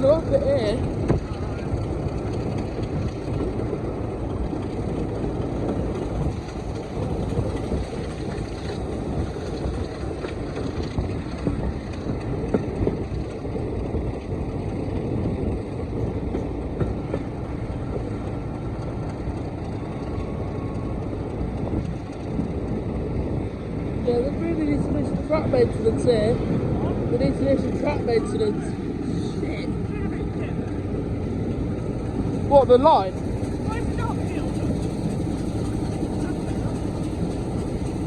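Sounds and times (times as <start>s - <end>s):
train rumbling on rails: 0.0s - 38.0s.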